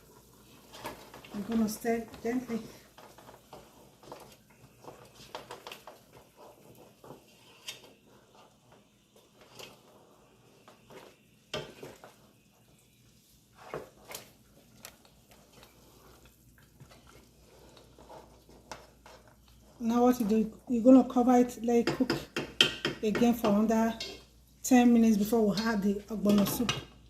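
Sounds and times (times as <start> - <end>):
spoon stirring in a pot: 0.0 - 27.0
spoon tapping a pot: 21.8 - 24.2.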